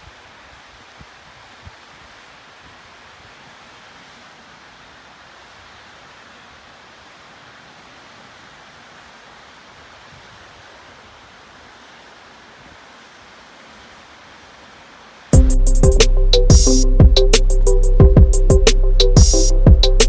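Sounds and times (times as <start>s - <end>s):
steady rushing noise: 15.3s - 20.0s.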